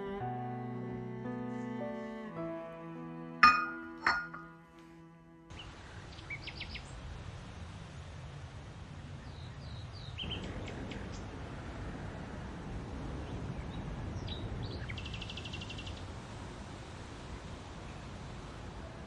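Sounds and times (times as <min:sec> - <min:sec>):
small birds chirping: 0:05.5 - 0:07.0, 0:13.3 - 0:16.0.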